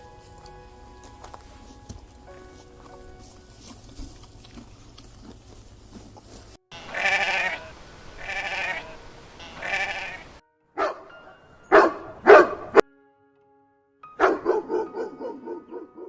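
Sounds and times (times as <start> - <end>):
wavering bleats: 6.7 - 10.4
dog barking: 10.8 - 11.1, 11.7 - 12.8, 14.2 - 16.0.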